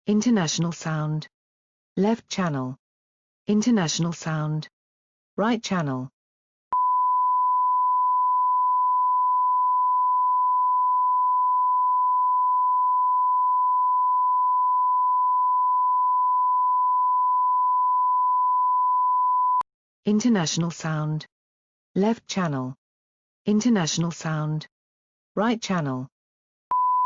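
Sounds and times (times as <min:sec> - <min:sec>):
steady sine-wave test tone: 0:06.8 - 0:19.6, 0:26.7 - 0:27.0.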